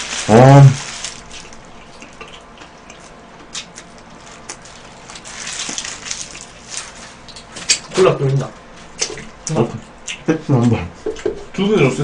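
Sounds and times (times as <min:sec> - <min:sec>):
paper wrapper crinkling: 0:00.0 - 0:01.8, 0:03.8 - 0:07.5
wet chewing of burger: 0:00.0 - 0:08.0.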